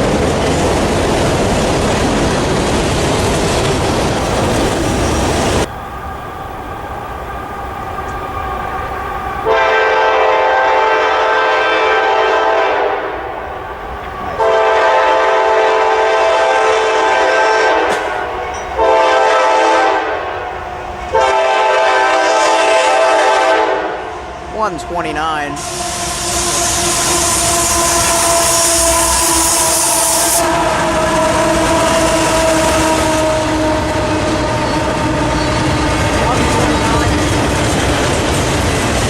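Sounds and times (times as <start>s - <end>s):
train passing close by: 0.0s - 39.0s
locomotive air horn blasts: 9.4s - 13.4s, 14.4s - 20.4s, 21.1s - 37.2s.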